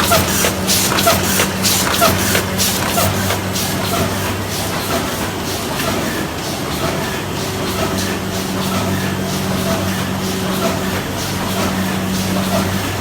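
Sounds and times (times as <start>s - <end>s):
machine motor hum: 0.0s - 4.1s
regular mechanical clatter: 0.0s - 4.3s.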